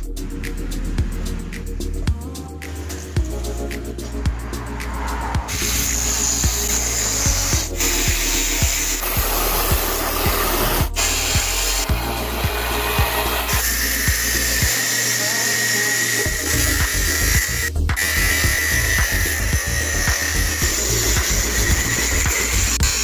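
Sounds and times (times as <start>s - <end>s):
background music with beat: 0.0s - 23.0s
angle grinder cutting sheet steel: 4.9s - 23.0s.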